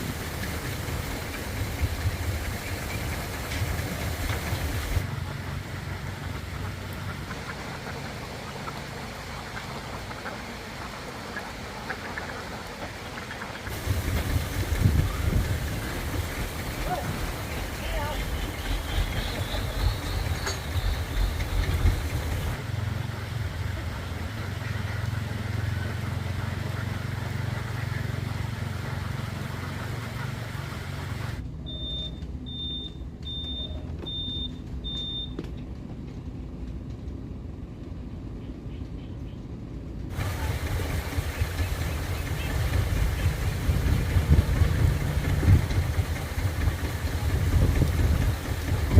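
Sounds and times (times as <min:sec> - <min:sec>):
truck engine humming: 0:00.0 - 0:48.9
short high beeps: 0:31.7 - 0:35.4.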